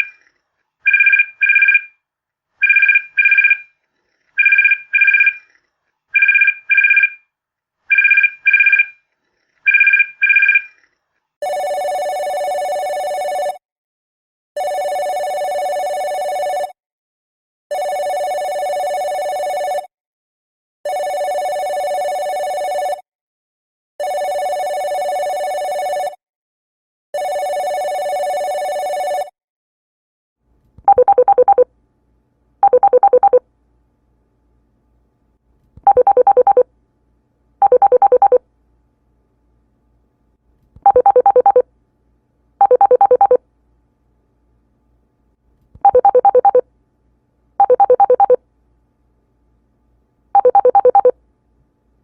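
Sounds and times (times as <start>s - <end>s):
warbling phone ring: 0.9s - 1.9s, 4.4s - 5.4s, 30.9s - 31.7s, 32.6s - 33.4s, 35.9s - 36.7s, 37.6s - 38.4s, 40.9s - 41.6s, 42.6s - 43.4s, 45.9s - 46.6s, 47.6s - 48.4s, 50.4s - 51.2s.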